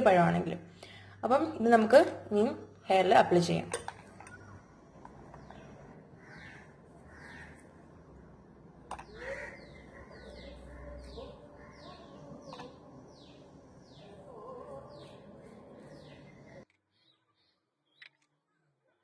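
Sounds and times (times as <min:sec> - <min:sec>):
birds chirping: 0:04.1 - 0:07.9, 0:08.8 - 0:18.7.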